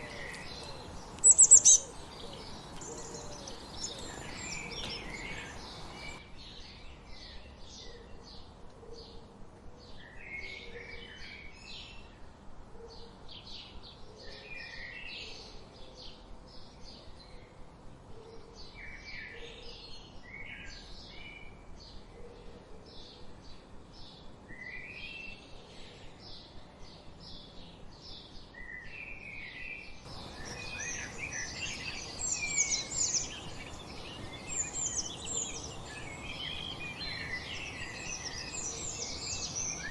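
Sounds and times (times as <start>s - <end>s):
songbirds chirping and singing: 0.0s - 12.1s, 13.0s - 39.9s.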